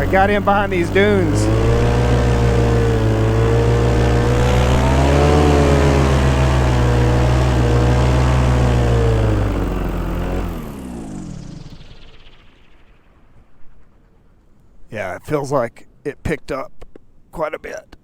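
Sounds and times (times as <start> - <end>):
paramotor engine running: 0.0 - 14.2.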